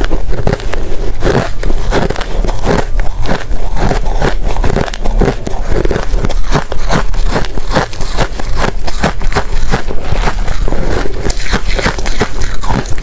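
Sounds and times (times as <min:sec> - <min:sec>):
ice crunching between teeth: 0:00.0 - 0:13.0.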